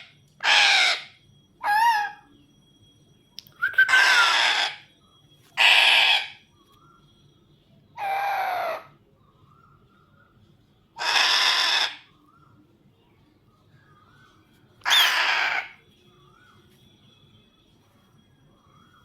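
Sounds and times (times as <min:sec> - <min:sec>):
parrot screeching: 0:00.0 - 0:02.2, 0:03.8 - 0:04.9, 0:05.6 - 0:06.4, 0:08.0 - 0:09.0, 0:11.0 - 0:12.1, 0:14.8 - 0:15.8.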